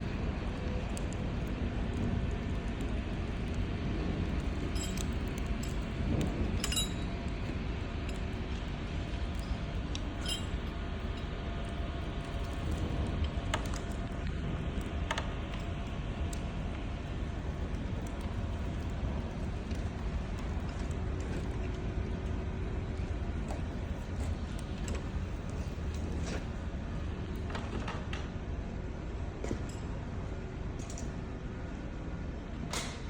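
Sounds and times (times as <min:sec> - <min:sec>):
steady low rumble: 0:00.0 - 0:32.7
light metallic clinks: 0:04.6 - 0:05.9, 0:06.6 - 0:07.2, 0:10.2 - 0:11.3.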